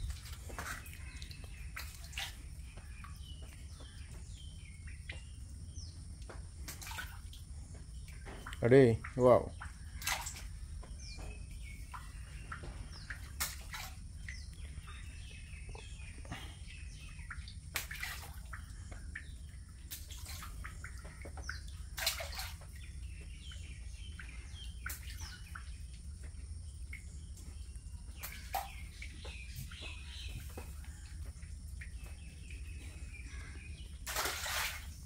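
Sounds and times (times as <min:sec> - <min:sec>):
splashes in water: 0:00.0 - 0:03.3, 0:06.6 - 0:07.4, 0:08.2 - 0:10.6, 0:11.6 - 0:14.5, 0:17.2 - 0:22.9, 0:34.0 - 0:35.0
small birds chirping: 0:00.0 - 0:35.0.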